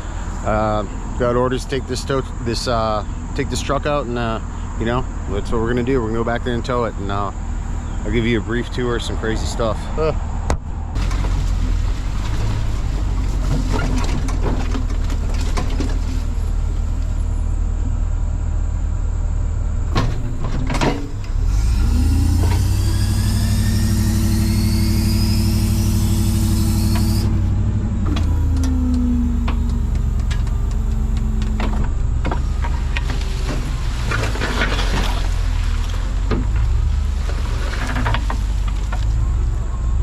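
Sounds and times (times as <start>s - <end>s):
truck engine running: 11.0s - 39.1s.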